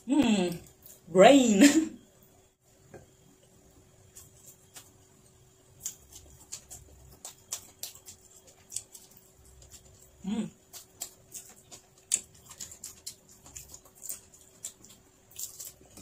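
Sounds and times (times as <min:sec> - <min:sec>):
person chewing food: 0:03.9 - 0:16.0.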